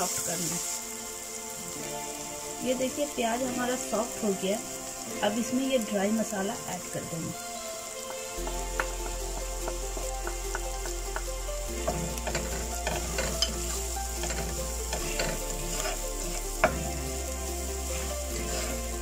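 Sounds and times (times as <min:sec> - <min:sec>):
onions and spices sizzling in oil: 0:00.0 - 0:19.0
spatula scraping and tapping pot: 0:09.7 - 0:17.0.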